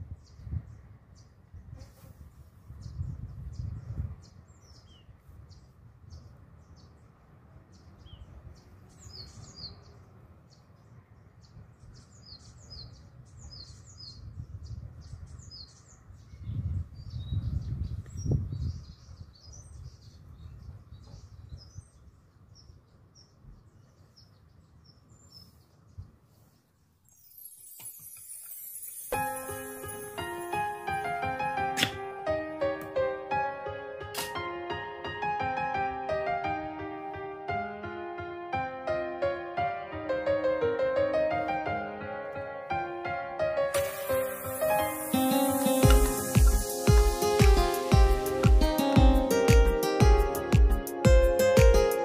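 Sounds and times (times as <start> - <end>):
birds chirping and twittering: 2.3 - 31.7, 43.8 - 52.0.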